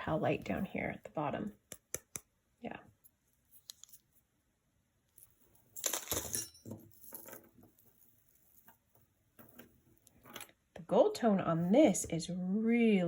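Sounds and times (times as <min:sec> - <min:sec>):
metal jewelry clinking: 0:05.1 - 0:10.6.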